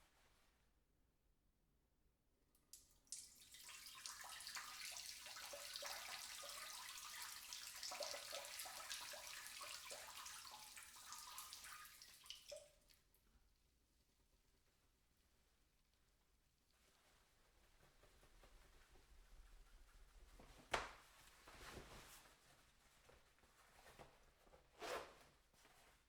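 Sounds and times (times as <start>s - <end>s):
person urinating into water: 2.8s - 13.0s.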